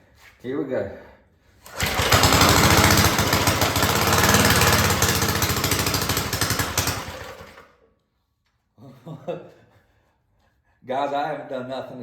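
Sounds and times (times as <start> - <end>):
small engine running fast: 1.7 - 7.6.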